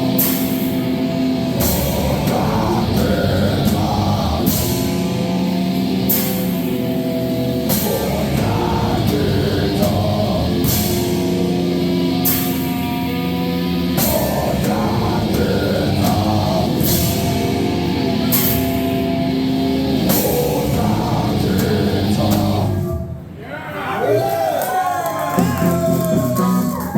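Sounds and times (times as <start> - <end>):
cymbal crashes: 0.0 - 8.4, 15.4 - 21.0
drum kit: 0.0 - 23.3, 25.3 - 26.9
distorted guitar chords: 0.0 - 23.4.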